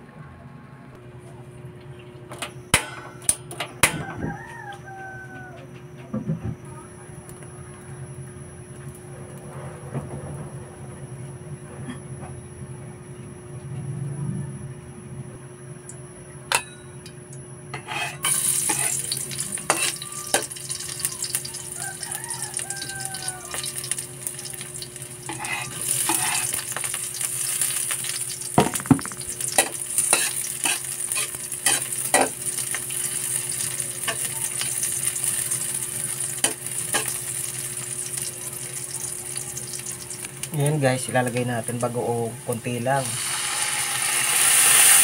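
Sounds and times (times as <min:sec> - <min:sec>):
onion and garlic sizzling in oil: 0:16.6 - 0:45.0
spatula knocking and scraping wok: 0:17.8 - 0:20.6, 0:25.3 - 0:26.9, 0:28.6 - 0:32.4.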